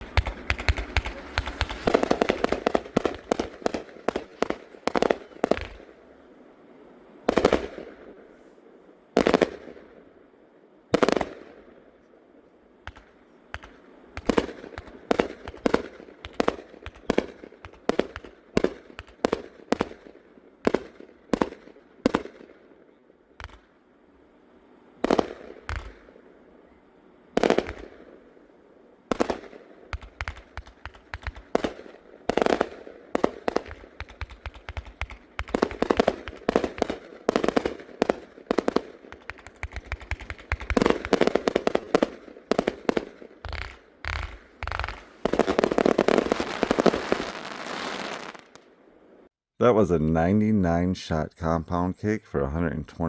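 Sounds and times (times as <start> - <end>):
firework booms: 0.0 - 6.0, 7.2 - 8.4, 9.2 - 10.0, 10.9 - 11.8, 12.8 - 22.7, 25.0 - 26.4, 27.4 - 28.5, 29.1 - 48.6
firework cake shots firing: 0.0 - 6.0, 7.3 - 8.2, 9.2 - 9.9, 11.0 - 11.7, 12.8 - 22.8, 23.4 - 23.8, 25.0 - 26.2, 27.4 - 28.4, 29.1 - 48.7.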